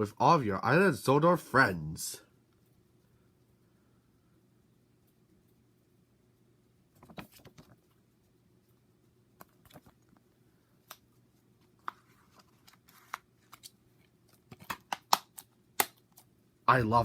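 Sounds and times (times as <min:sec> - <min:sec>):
paper pages rustling: 0:07.0 - 0:07.9, 0:11.6 - 0:15.1.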